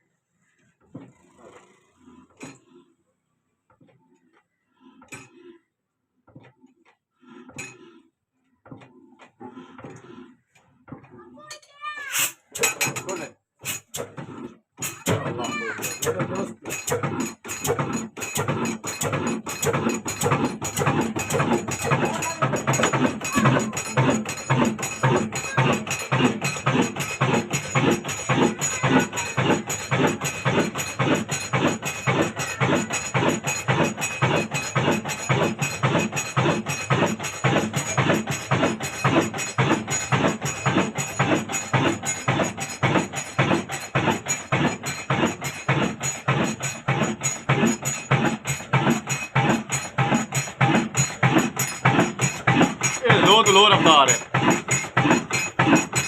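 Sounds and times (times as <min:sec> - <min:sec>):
diesel engine knocking slowly: 0:13.9 - 0:56.0.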